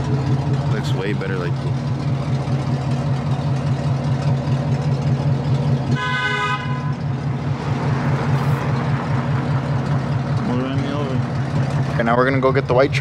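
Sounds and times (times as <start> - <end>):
truck engine idling: 0.0 - 13.0
car horn toot: 5.9 - 7.2.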